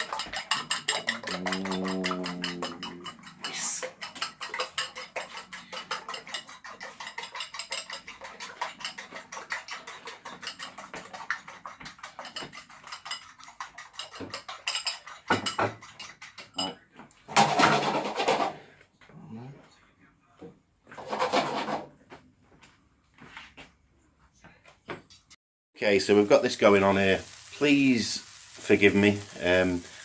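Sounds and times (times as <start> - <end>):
fork clicking against bowl: 0.0 - 10.6.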